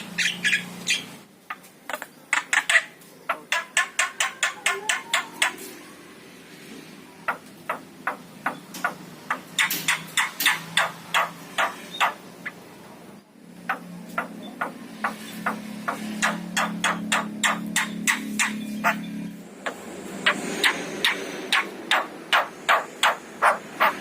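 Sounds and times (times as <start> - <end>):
bird calling with clicking notes: 0.2 - 5.6, 7.3 - 12.6, 13.6 - 19.1.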